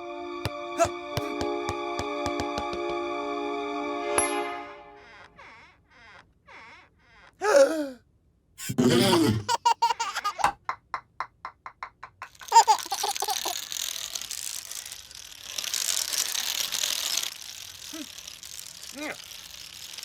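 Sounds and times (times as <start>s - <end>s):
cartoon soundtrack: 0.0s - 5.7s
baby giggling: 8.7s - 13.6s.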